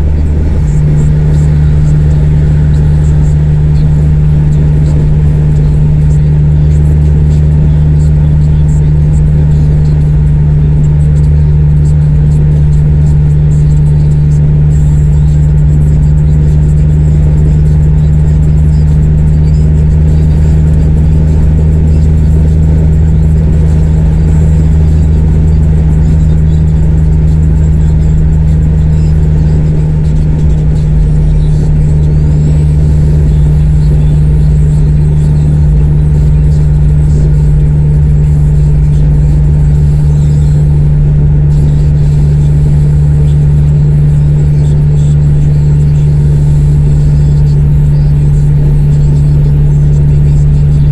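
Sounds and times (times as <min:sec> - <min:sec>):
car exhaust loud low drone: 0:00.0 - 0:50.9.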